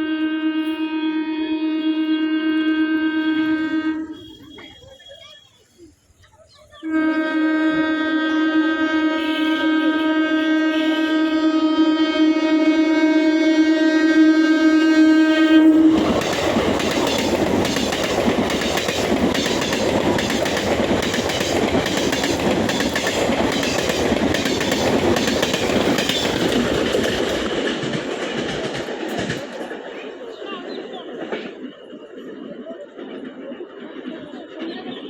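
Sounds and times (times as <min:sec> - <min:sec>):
train horn long note: 0:00.0 - 0:04.8, 0:06.8 - 0:17.8
train wheel and rail noise: 0:00.0 - 0:35.0
wheels clacking over rail joints: 0:15.7 - 0:35.0.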